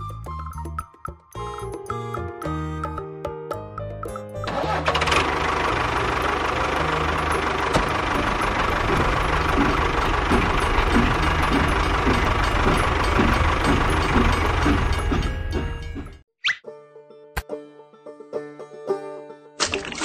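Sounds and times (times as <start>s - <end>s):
tractor engine running: 4.4s - 16.2s.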